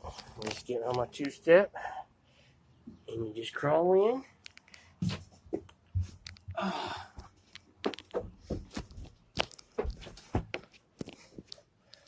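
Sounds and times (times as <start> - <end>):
knocks of person crawling: 7.8 - 10.7.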